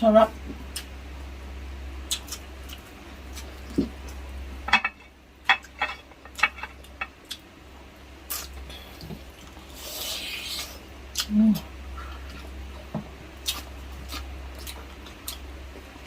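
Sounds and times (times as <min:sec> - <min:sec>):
low steady hum: 0:00.0 - 0:16.0
cutlery clinking against plate: 0:04.7 - 0:07.1.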